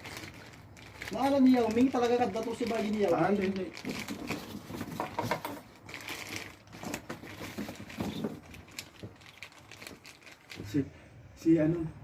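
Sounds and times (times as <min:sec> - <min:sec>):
small hard parts clicking and clattering: 0:00.0 - 0:10.8.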